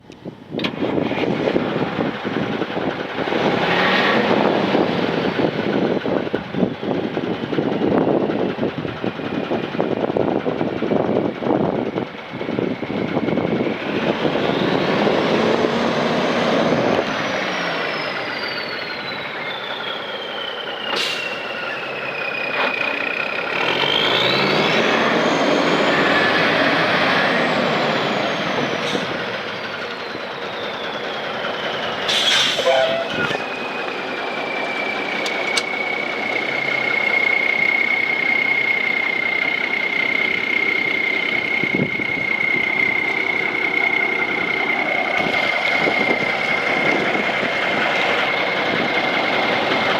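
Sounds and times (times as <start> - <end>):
diesel truck engine revving: 0.6 - 49.9
brief sharp sound: 32.1 - 33.5.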